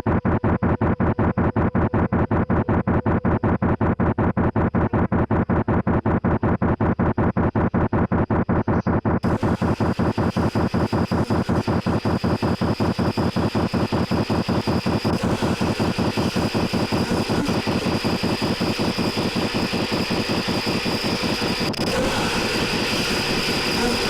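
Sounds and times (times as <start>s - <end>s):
steady high whine: 0.0s - 24.0s.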